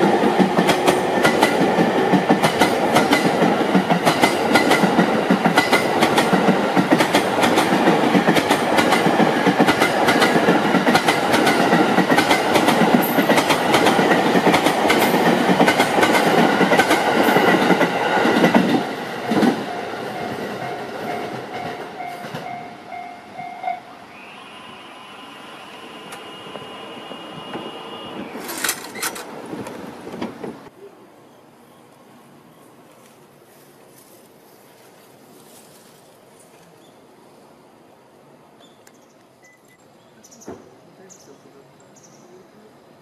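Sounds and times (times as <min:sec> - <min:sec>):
train wheels clacking over rail joints: 0:00.2 - 0:22.6
train brakes squealing: 0:22.0 - 0:29.2.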